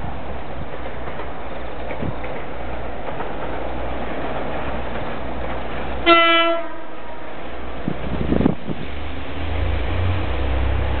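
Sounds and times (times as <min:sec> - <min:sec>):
train running: 0:00.0 - 0:11.0
train horn blast: 0:06.0 - 0:07.3.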